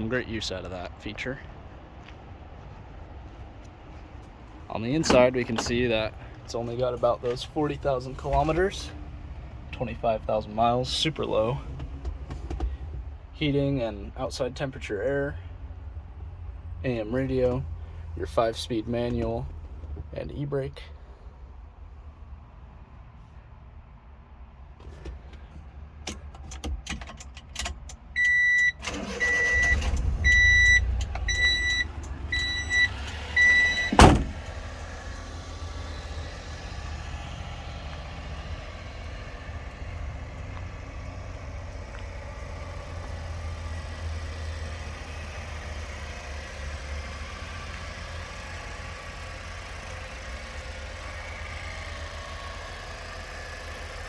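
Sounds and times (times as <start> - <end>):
engine cranking and starting: 28.7 - 54.0
engine idling: 28.8 - 54.0.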